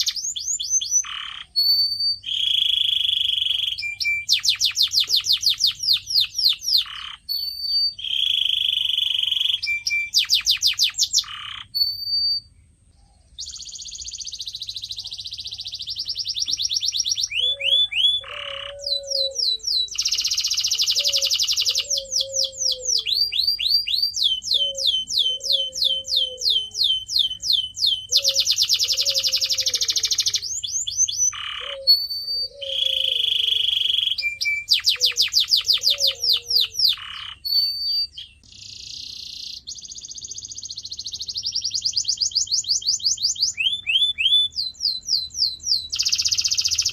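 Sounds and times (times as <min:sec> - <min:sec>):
canary singing trills: 0:00.0 - 0:46.9.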